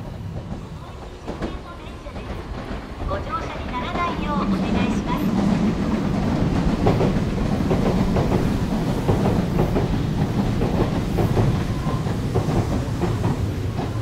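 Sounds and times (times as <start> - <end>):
train rumbling on rails: 0.0 - 14.0
train wheels clicking: 0.0 - 14.0.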